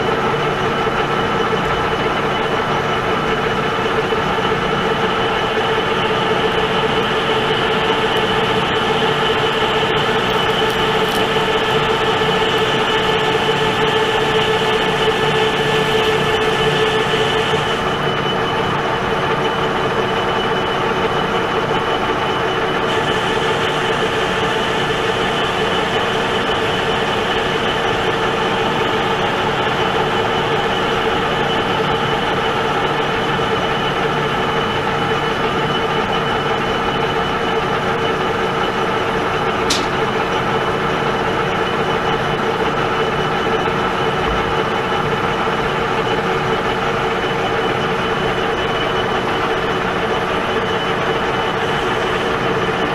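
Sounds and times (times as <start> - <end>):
metal lathe whining: 0.0 - 52.9
sharp click: 39.7 - 40.2.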